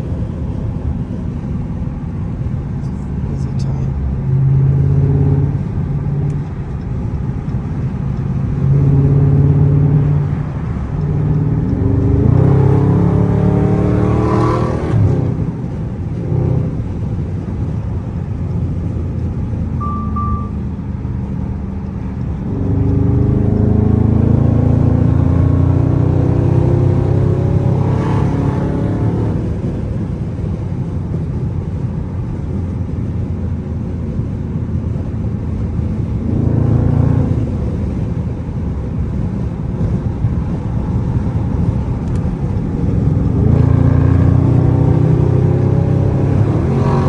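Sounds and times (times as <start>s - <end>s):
car exhaust roaring: 0.0s - 47.0s
short beep: 19.8s - 20.8s.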